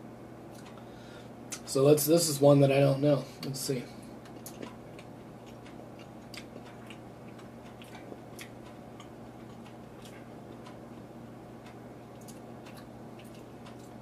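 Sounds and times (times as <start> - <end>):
steady low hum: 0.0 - 14.0
chewing sticky clicks: 4.2 - 14.0.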